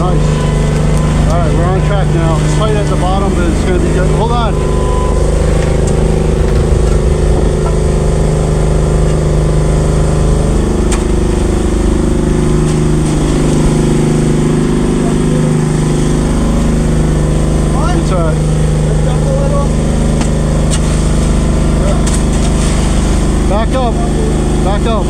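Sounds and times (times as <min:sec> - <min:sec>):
truck engine running: 0:05.0 - 0:15.4.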